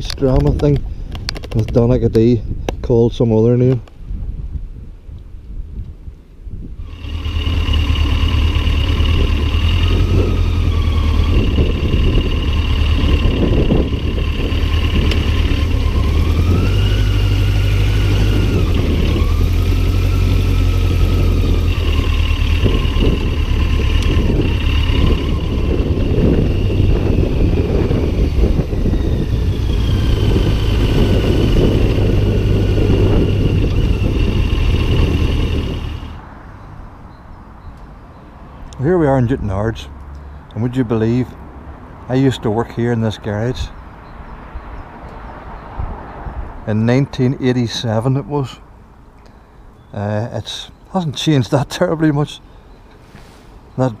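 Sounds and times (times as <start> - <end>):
wind buffeting microphone: 0.0 - 36.3
motorcycle engine: 6.8 - 36.3.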